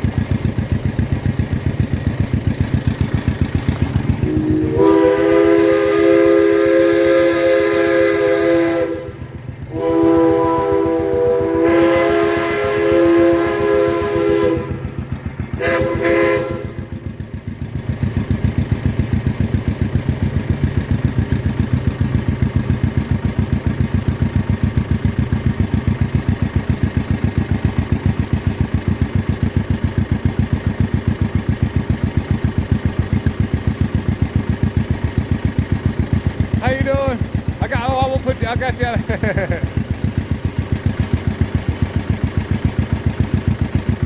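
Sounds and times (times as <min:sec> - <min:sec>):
tractor engine putt-putt: 0:00.0 - 0:44.0
deep chord-like horn blast: 0:04.2 - 0:14.8.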